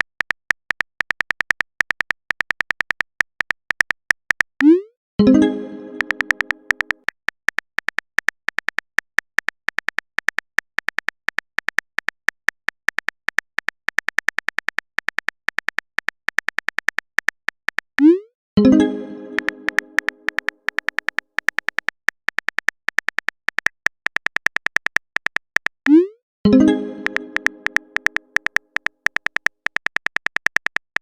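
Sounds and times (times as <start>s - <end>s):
phone keyboard typing clicks: 0.0s - 31.0s
message chime: 4.6s - 6.9s, 18.6s - 20.3s, 26.5s - 28.2s.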